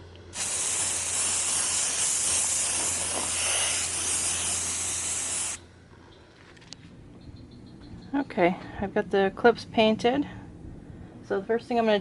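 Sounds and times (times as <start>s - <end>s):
spray paint can hissing: 0.3s - 5.6s.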